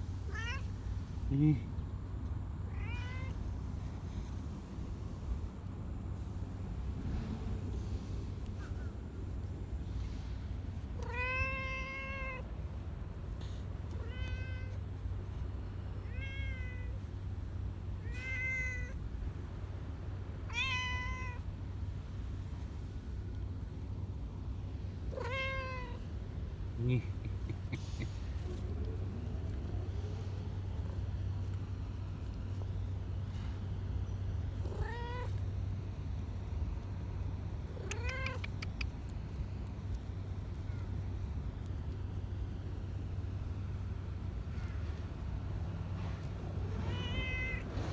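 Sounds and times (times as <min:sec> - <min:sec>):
steady low rumble: 0:00.0 - 0:47.9
cat meowing: 0:00.3 - 0:00.7, 0:02.7 - 0:03.4, 0:11.0 - 0:12.5, 0:13.9 - 0:14.8, 0:16.0 - 0:17.0, 0:18.0 - 0:19.0, 0:20.5 - 0:21.4, 0:25.1 - 0:26.1, 0:34.6 - 0:35.4, 0:37.7 - 0:38.9, 0:46.7 - 0:47.9.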